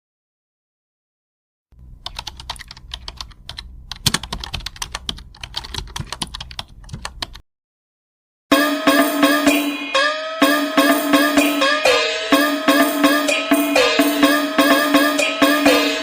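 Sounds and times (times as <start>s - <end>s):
rapid typing on keyboard: 2.0s - 7.4s.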